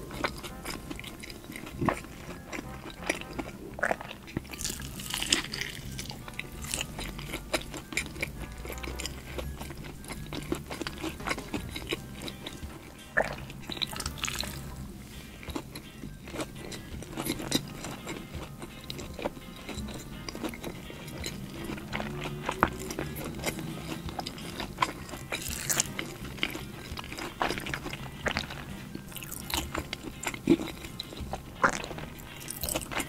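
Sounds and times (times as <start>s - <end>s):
chewing crispy fried chicken: 0.0s - 33.0s
faint background music: 0.0s - 33.0s.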